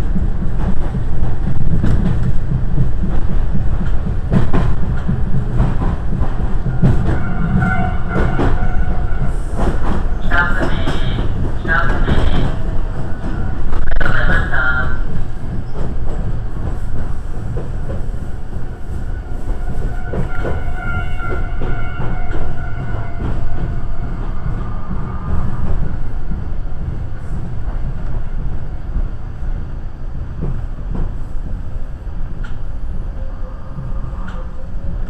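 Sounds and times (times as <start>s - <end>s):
train rumbling: 0.0s - 35.0s.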